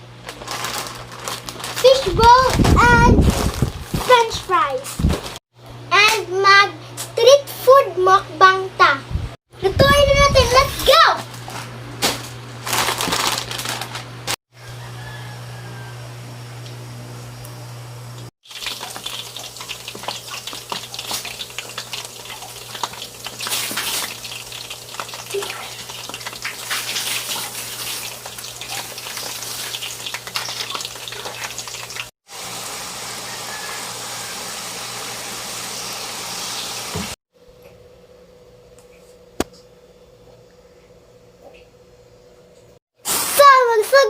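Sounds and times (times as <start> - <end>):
food deep-frying in hot oil: 16.6 - 37.2.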